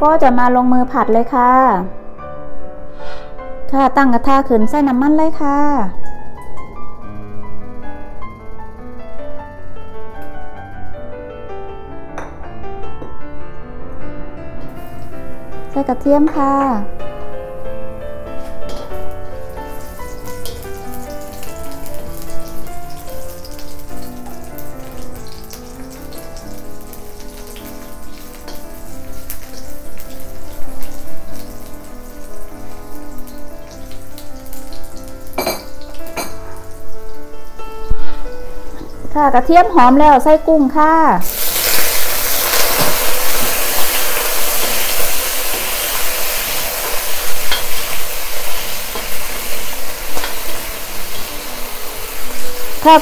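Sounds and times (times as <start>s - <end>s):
slow background music: 0.0s - 53.0s
garlic sizzling in oil: 18.4s - 37.6s, 41.2s - 53.0s
spatula scraping and tapping wok: 42.5s - 51.2s.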